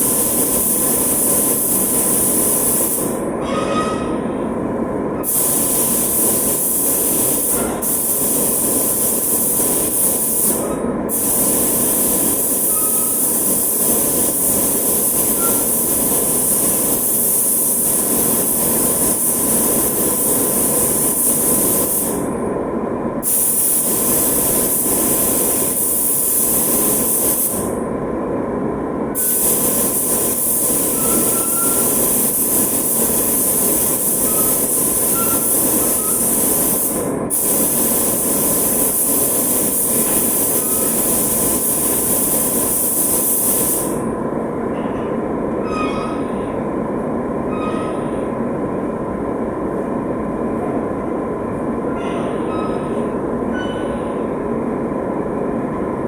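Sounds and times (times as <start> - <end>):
spray gun hissing: 0.0 - 3.2, 5.2 - 22.3, 23.2 - 27.7, 29.2 - 44.0.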